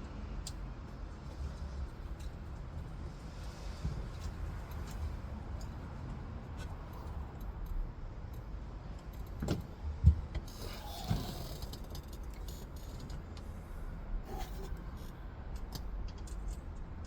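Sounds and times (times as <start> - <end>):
small clicks and clinks of tools: 14.4 - 16.9.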